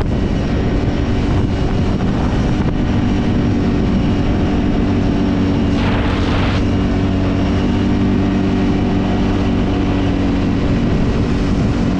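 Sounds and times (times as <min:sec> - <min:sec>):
atv engine droning: 0:00.0 - 0:11.9
brief rushing hiss: 0:05.7 - 0:06.7.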